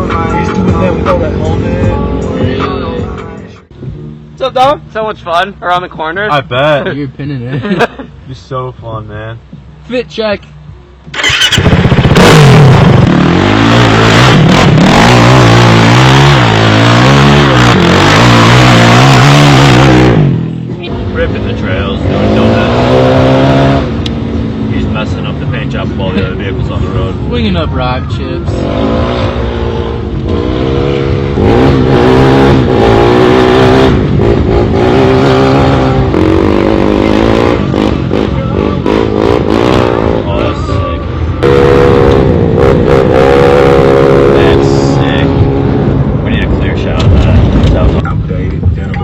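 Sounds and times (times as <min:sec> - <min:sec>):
quad engine revving: 0:11.1 - 0:20.5, 0:21.2 - 0:24.1, 0:28.4 - 0:40.6, 0:41.4 - 0:46.0.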